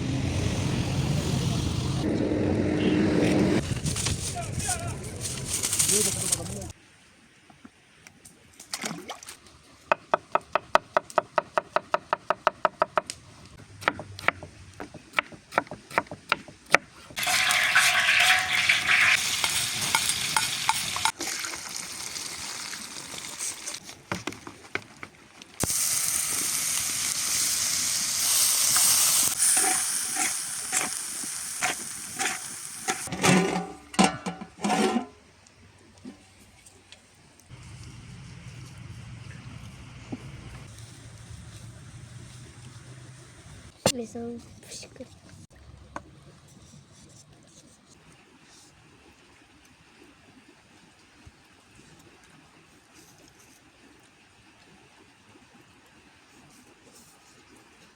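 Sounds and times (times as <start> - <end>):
food sizzling in a pan: 17.2 - 23.8, 25.6 - 33.1.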